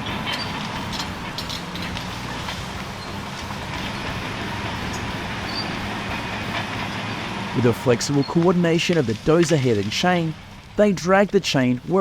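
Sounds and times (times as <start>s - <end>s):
track squeaks: 0.0s - 9.6s
bulldozer diesel engines: 0.0s - 12.0s.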